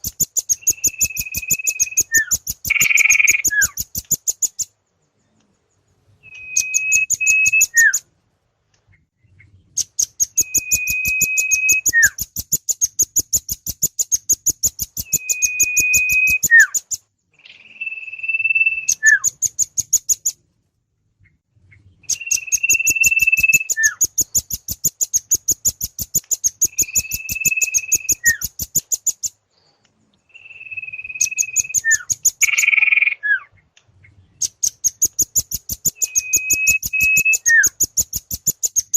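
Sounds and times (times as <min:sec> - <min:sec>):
bird held whistle: 0:00.0 - 0:04.7, 0:06.2 - 0:08.1, 0:10.0 - 0:20.3, 0:22.0 - 0:29.3, 0:30.3 - 0:33.5, 0:34.4 - 0:38.9
bird rapid high chips: 0:00.0 - 0:04.8, 0:09.8 - 0:20.4, 0:22.1 - 0:29.4, 0:30.4 - 0:33.2, 0:34.4 - 0:38.9.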